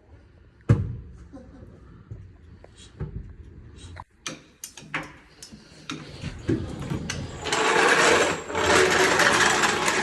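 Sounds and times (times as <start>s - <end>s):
fast mechanical rattling: 7.1s - 10.0s.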